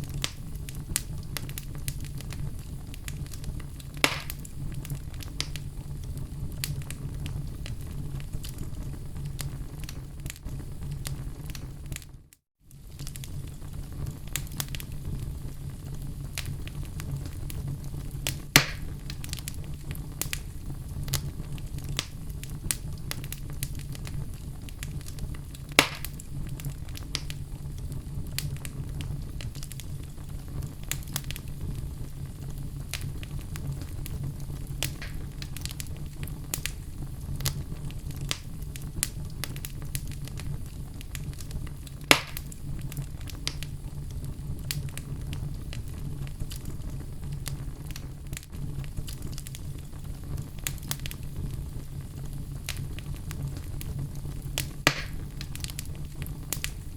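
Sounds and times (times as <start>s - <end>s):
fire crackling: 0.0s - 56.9s
fire rumbling: 0.0s - 56.9s
loud fire pops: 0.0s - 56.9s.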